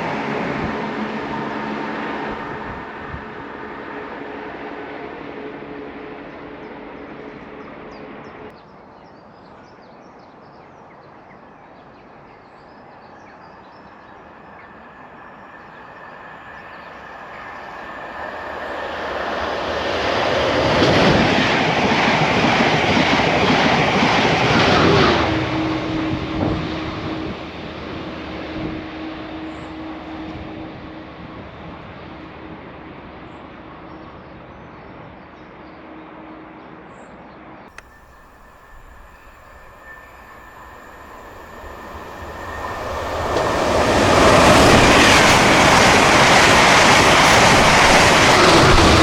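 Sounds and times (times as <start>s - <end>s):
train rushing rail noise: 0.0s - 8.5s, 12.8s - 49.0s
droning tone of train: 0.0s - 49.0s.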